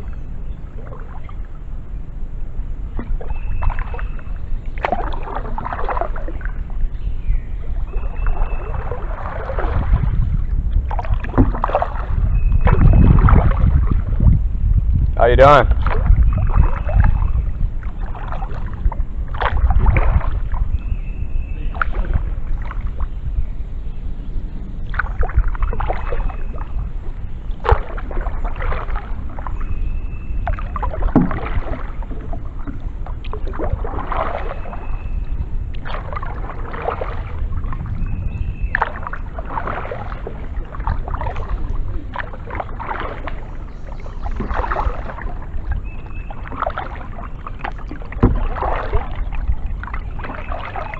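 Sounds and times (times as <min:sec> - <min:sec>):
kayak paddle splashing in water: 0:00.0 - 0:01.7, 0:02.8 - 0:23.2, 0:24.8 - 0:50.9
steady low rumble: 0:00.0 - 0:50.9.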